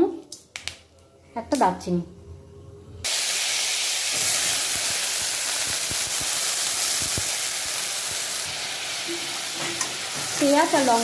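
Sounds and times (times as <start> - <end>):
paste sizzling in hot oil: 3.1 - 11.0.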